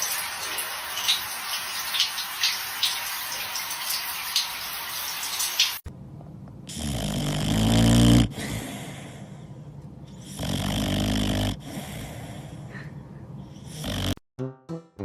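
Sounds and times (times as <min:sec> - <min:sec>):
pet snoring: 0:06.7 - 0:09.2, 0:10.2 - 0:12.5, 0:13.6 - 0:14.2.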